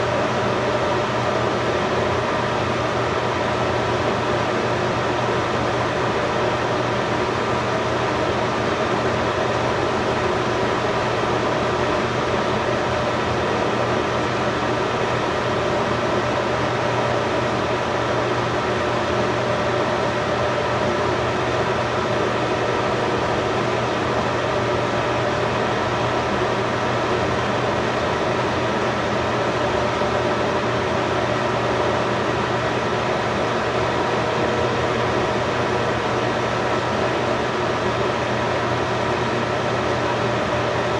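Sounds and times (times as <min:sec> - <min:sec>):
machine hum and whir: 0:00.0 - 0:40.9.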